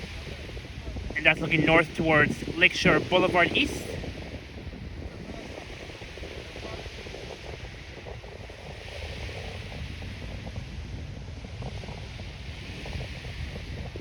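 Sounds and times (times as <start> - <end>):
wind buffeting microphone: 0.0 - 14.0
steady outdoor hiss: 1.2 - 3.9.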